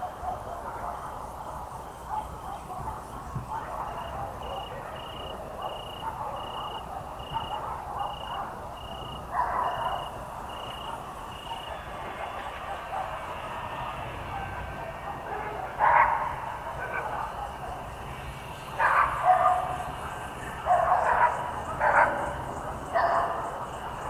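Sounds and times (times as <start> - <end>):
cricket chirping: 3.8 - 11.8.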